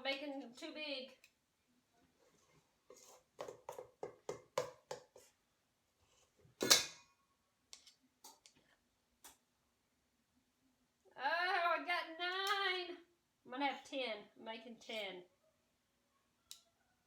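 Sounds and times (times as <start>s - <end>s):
kitchen utensils knocking: 6.6s - 7.0s.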